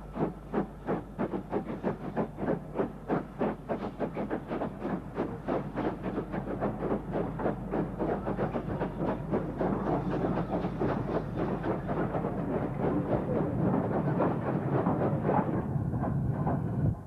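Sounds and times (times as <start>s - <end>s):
steam train wheels clattering: 0.0s - 17.0s.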